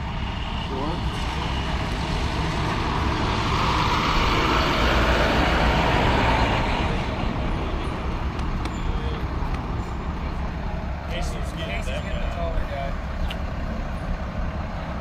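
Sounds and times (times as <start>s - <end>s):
road vehicle passing by: 0.0s - 15.0s.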